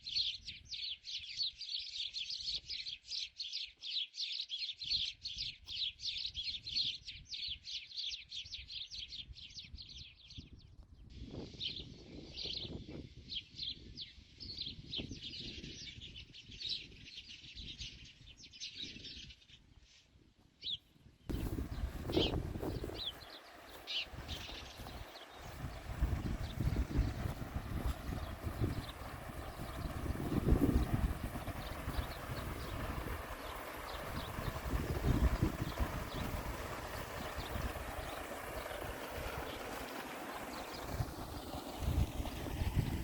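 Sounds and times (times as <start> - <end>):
small birds chirping: 0.0 - 43.0
low rumbling noise: 21.3 - 43.0.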